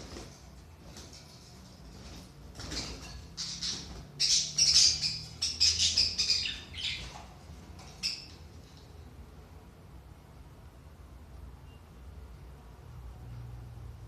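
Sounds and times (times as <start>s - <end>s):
budgerigars chattering and squawking: 2.6s - 7.3s.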